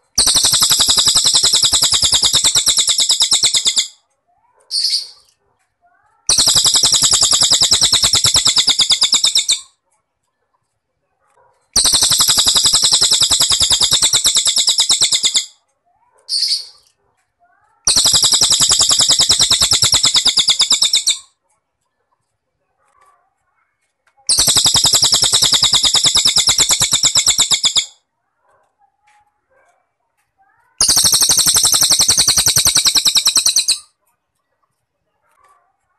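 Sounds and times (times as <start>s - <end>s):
cricket trilling: 11.8s - 15.4s, 30.8s - 33.8s.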